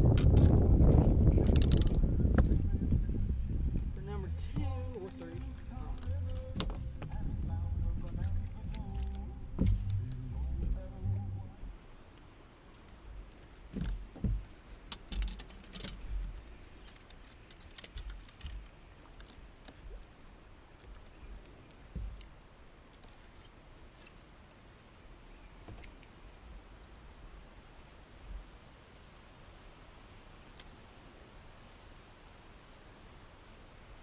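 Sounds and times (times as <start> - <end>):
dull low knocks: 0.0 - 11.8, 13.1 - 15.3, 21.9 - 22.2
small clicks: 8.1 - 10.2, 12.1 - 20.1.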